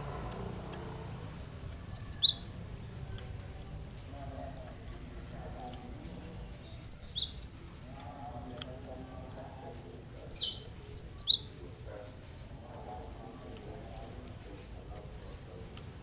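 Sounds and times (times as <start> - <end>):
bird chirping: 1.7 - 2.6, 5.6 - 7.8, 10.3 - 11.6, 14.8 - 15.4.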